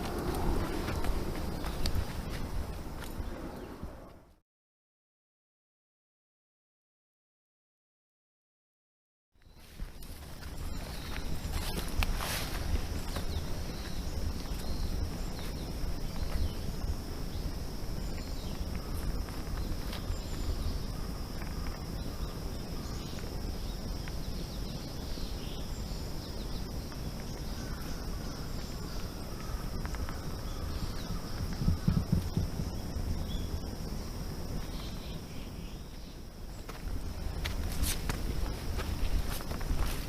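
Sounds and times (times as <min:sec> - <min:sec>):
footsteps on forest trail: 0:00.0 - 0:03.7, 0:09.4 - 0:24.2, 0:26.5 - 0:40.0
insects trilling: 0:00.0 - 0:03.9, 0:09.4 - 0:40.0.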